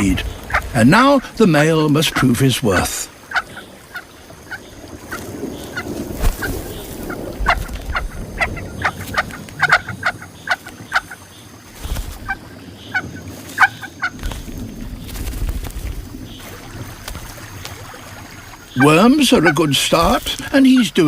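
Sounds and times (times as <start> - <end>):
chicks begging calls: 7.0 - 11.4, 12.0 - 14.5, 18.6 - 21.0.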